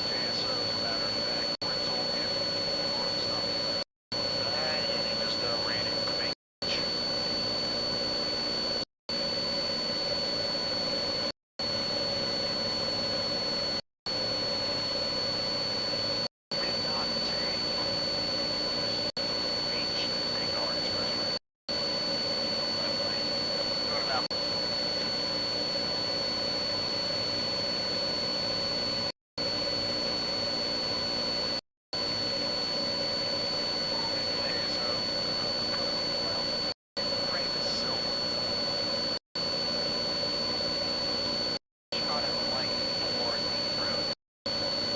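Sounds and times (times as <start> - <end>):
engine-like drone with high whine: 0.0 - 3.6, 4.2 - 8.8, 22.8 - 25.3, 32.7 - 39.2, 40.4 - 44.9
faint high whine: 0.0 - 44.9.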